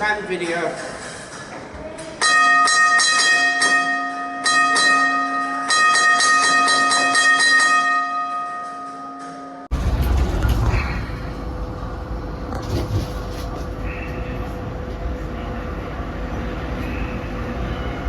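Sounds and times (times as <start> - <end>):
bell struck repeatedly: 2.2 - 9.7.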